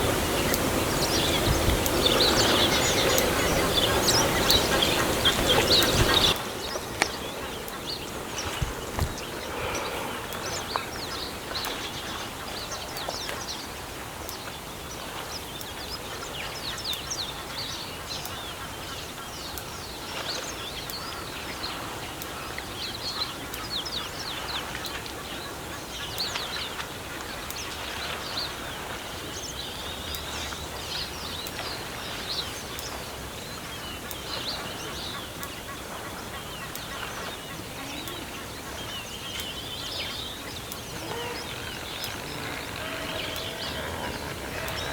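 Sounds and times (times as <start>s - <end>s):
birds chirping and calling: 0.0s - 13.4s, 34.0s - 44.9s.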